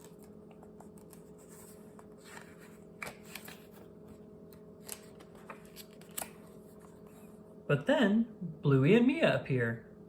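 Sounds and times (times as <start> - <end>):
book page turning: 0.0 - 7.2
low steady hum: 0.0 - 10.0.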